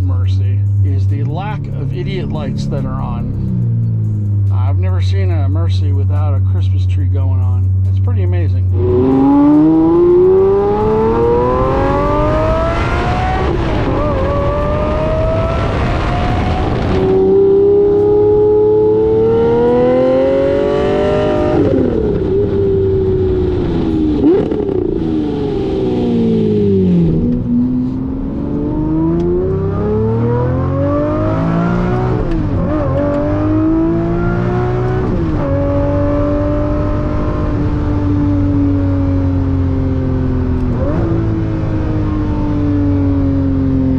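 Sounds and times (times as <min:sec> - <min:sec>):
car engine revving through gears: 0:08.7 - 0:43.9.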